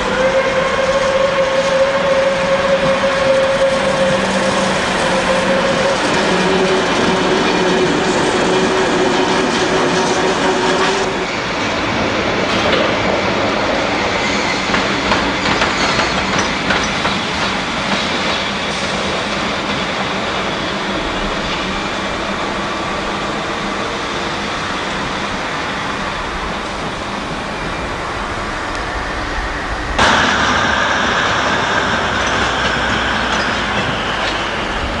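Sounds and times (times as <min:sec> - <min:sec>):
train wheels clacking over rail joints: 0:00.0 - 0:24.2, 0:29.9 - 0:35.0
steady rolling rumble: 0:19.1 - 0:35.0.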